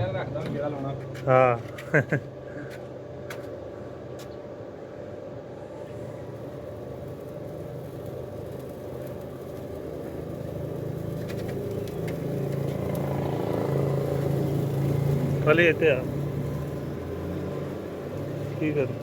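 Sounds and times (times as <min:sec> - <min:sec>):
stationary diesel engine running: 0:06.2 - 0:19.0.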